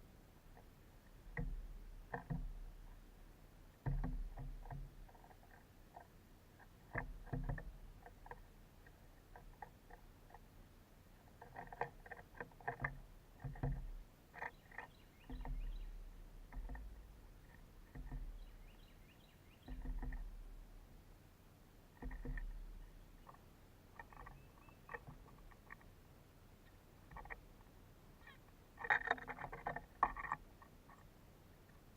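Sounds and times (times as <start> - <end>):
birds pecking at wire feeder: 0.4 - 21.0, 21.8 - 31.9
faint high bird chirps: 14.4 - 16.6, 18.0 - 20.2, 24.0 - 25.1, 28.2 - 28.5.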